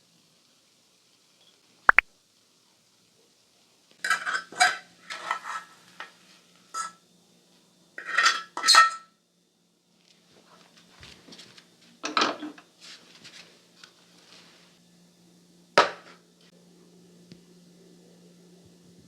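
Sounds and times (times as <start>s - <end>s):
dishes and cutlery clattering: 4.0s - 6.1s, 6.8s - 7.0s, 8.0s - 9.1s, 12.0s - 12.6s.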